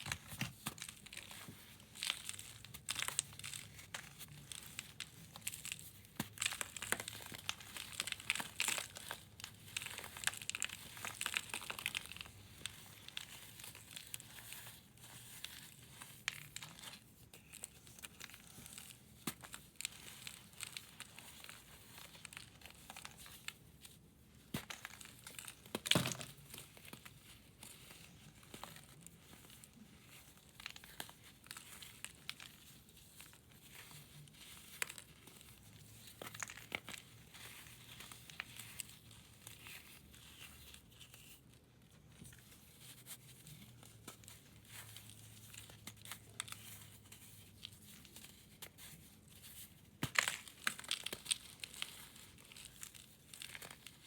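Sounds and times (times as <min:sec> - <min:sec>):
powder blocks crumbling and crunching: 0:50.0 - 0:53.9.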